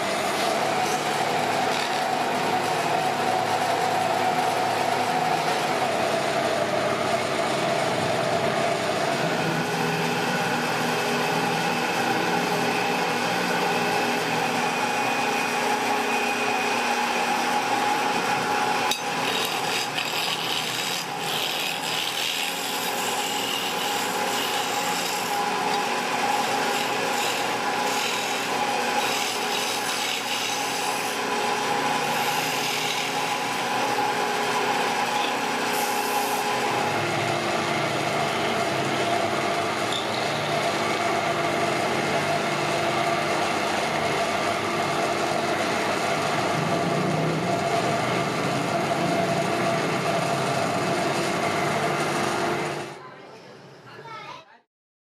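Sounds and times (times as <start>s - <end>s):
tool rasping wood: 0.0s - 5.7s, 11.0s - 37.2s.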